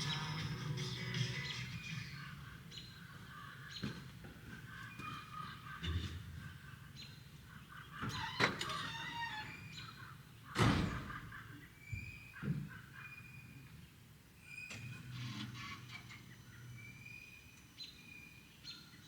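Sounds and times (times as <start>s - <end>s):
birds chirping: 0.0s - 5.9s.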